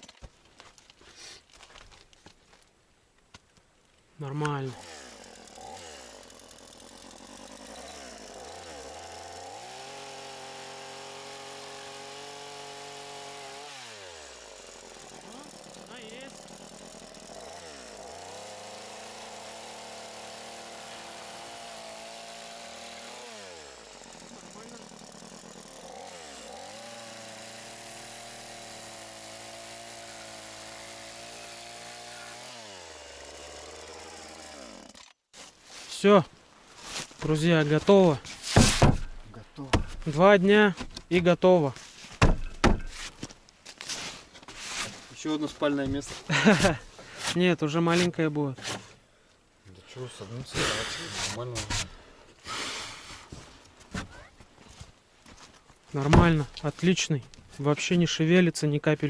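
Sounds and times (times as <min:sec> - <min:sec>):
chainsaw engine revving: 0:04.7 - 0:35.2, 0:46.2 - 0:47.2, 0:50.4 - 0:51.5, 0:52.4 - 0:53.1, 0:56.1 - 0:56.6.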